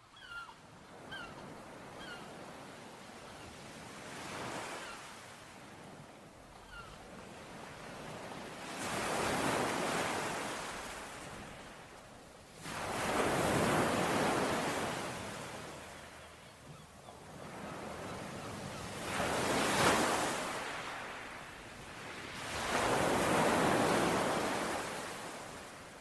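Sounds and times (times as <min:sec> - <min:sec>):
ocean waves washing onto shore: 0:07.2 - 0:16.4, 0:17.3 - 0:26.0.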